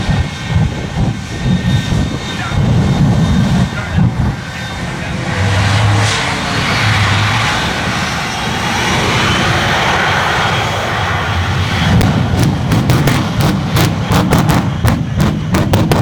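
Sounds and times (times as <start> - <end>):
rushing engine noise: 0.0 - 16.0.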